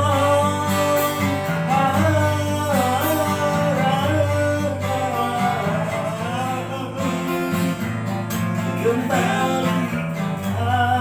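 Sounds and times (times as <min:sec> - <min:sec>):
person singing long notes: 0:00.0 - 0:07.7
guitar accompaniment: 0:00.0 - 0:11.0.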